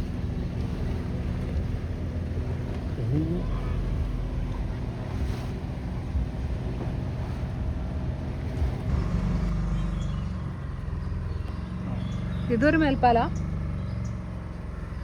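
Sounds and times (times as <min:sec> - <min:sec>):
boat engine rumbling: 0:00.0 - 0:15.0
water noise: 0:00.0 - 0:15.0.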